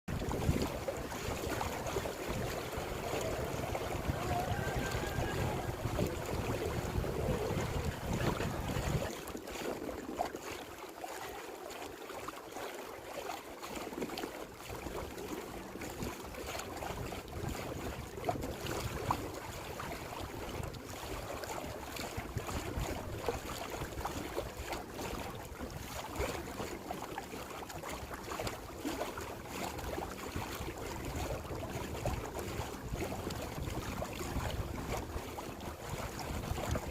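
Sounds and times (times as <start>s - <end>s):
wind buffeting microphone: 0.1s - 10.3s, 15.9s - 24.5s, 30.7s - 36.9s
water rushing and splashing: 0.1s - 36.9s.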